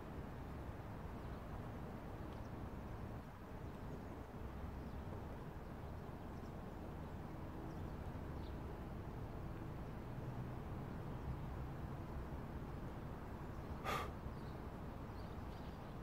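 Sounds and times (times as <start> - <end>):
faint short bird chirps: 13.8 - 14.6.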